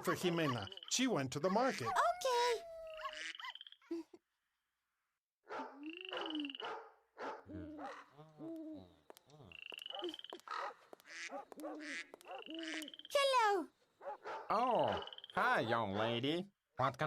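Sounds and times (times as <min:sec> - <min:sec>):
frog croaking: 0:00.0 - 0:02.0, 0:02.9 - 0:03.9, 0:05.8 - 0:06.8, 0:07.7 - 0:13.2, 0:14.6 - 0:15.7.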